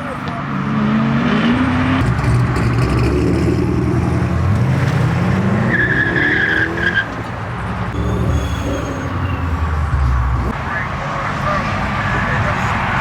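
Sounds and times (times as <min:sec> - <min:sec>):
car engine accelerating: 0:00.5 - 0:06.9
tire squeal: 0:05.5 - 0:07.3, 0:07.9 - 0:09.8.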